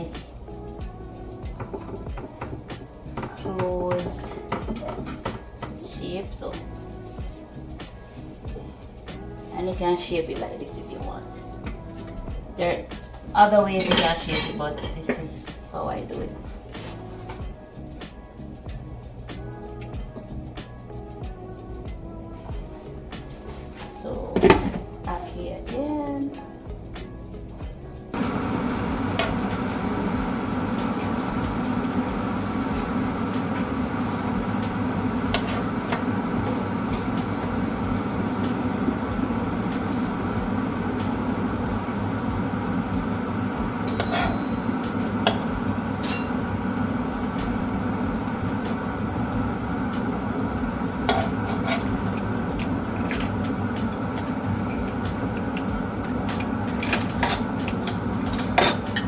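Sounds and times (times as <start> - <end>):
utensil clinking against cookware: 13.7 - 15.4, 28.2 - 47.9, 50.9 - 59.0
steady rushing noise: 27.6 - 59.0.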